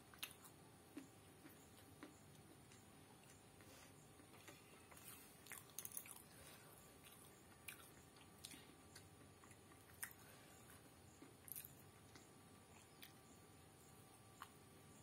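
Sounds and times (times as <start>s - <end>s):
faint crisp chewing: 0.0s - 15.0s.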